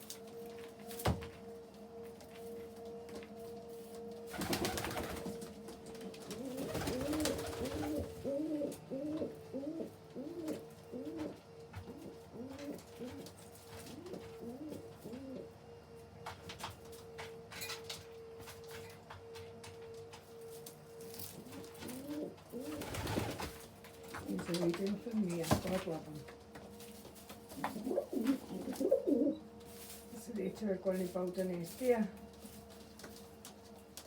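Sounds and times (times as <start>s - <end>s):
pigeon cooing: 6.1s - 15.6s, 21.4s - 23.3s, 27.6s - 29.5s.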